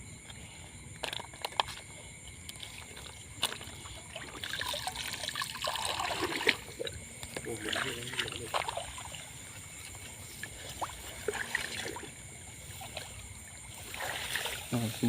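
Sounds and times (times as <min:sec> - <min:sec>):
water trickling and sloshing: 0:00.3 - 0:15.0.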